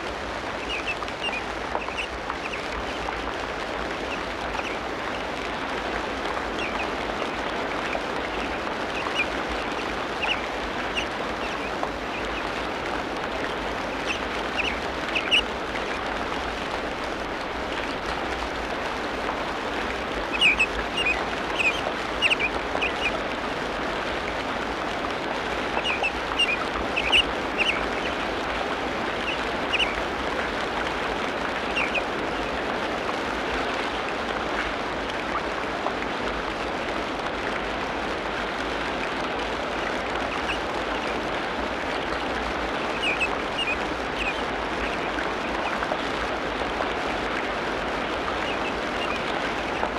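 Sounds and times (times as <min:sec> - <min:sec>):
sharp bird calls: 0:13.9 - 0:15.4, 0:20.3 - 0:23.2, 0:25.8 - 0:28.3, 0:29.2 - 0:30.0.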